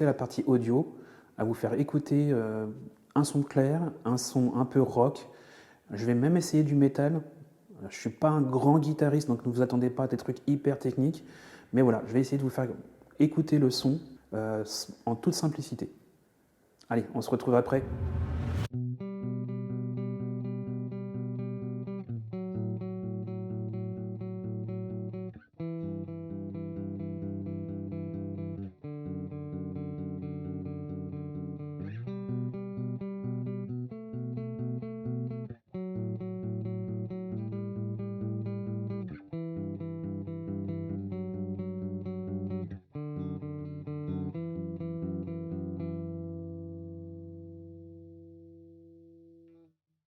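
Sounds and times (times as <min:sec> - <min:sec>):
clean electric guitar chords: 0:18.6 - 0:49.4.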